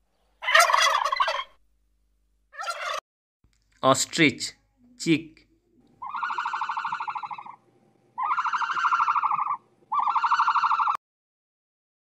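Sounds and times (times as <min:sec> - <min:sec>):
fast-pulsing trilling calls: 0:06.0 - 0:07.6, 0:08.2 - 0:11.0.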